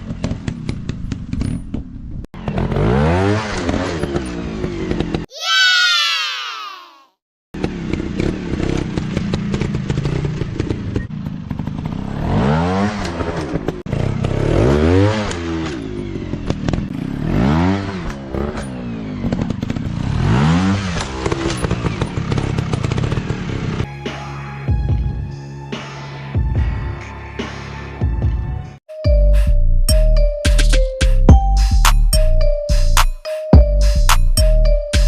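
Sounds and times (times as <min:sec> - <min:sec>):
motorcycle engine revving: 0:00.0 - 0:05.3, 0:07.6 - 0:23.9.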